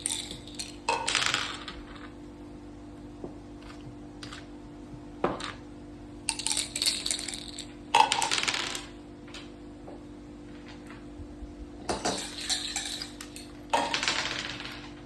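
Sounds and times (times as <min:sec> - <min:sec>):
dice and game pieces clattering: 0:00.0 - 0:02.2, 0:06.3 - 0:09.4, 0:11.9 - 0:15.0
steady low hum: 0:00.0 - 0:15.0.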